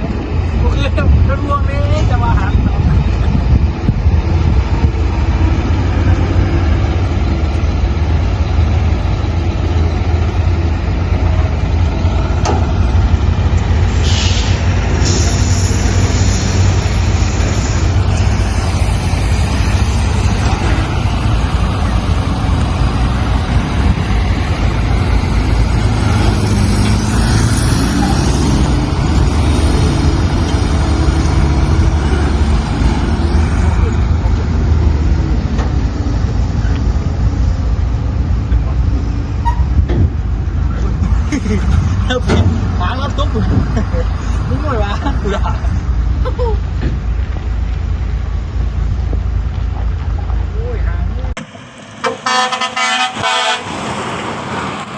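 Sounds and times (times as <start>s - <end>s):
diesel truck engine rumbling: 0.0s - 54.9s
air hiss: 13.9s - 19.1s.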